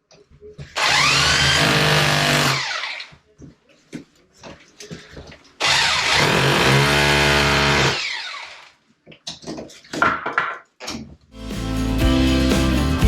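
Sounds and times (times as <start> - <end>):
power tool motor: 0.8 - 3.1, 5.6 - 8.7
background music: 11.4 - 13.0.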